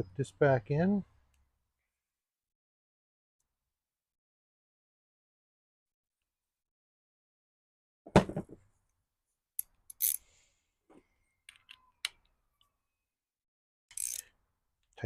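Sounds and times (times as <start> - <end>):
knock of small parts: 8.1 - 8.6.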